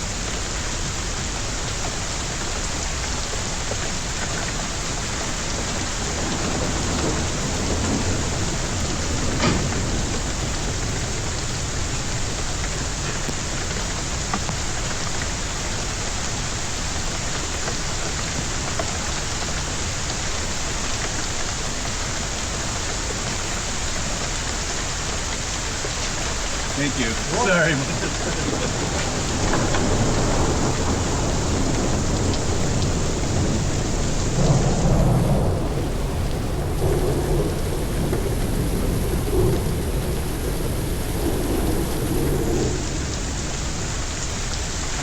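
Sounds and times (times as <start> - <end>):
rain and hail beating: 0.0 - 45.0
thunder rumble and crack: 0.0 - 45.0.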